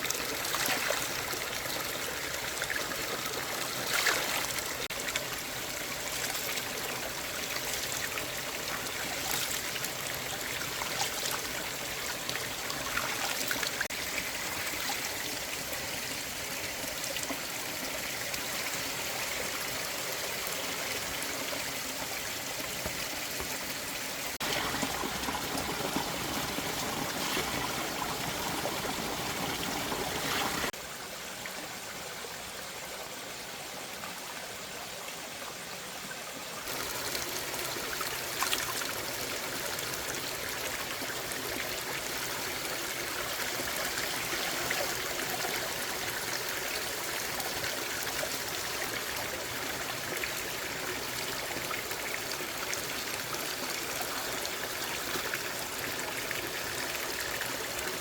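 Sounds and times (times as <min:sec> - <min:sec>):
running water rushing: 0:00.0 - 0:30.8.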